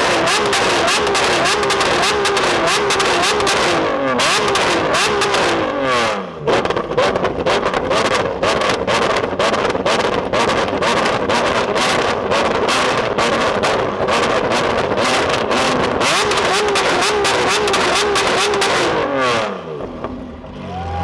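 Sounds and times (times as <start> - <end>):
exhaust crackles and pops: 0.0 - 5.7, 6.5 - 19.1
sports car engine running hard: 0.0 - 21.0.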